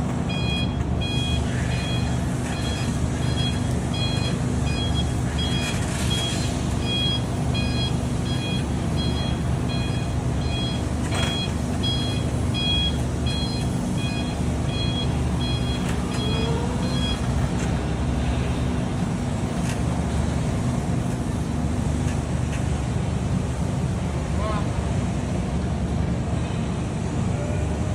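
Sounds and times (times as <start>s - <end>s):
vehicle warning beeps: 0.2s - 18.4s.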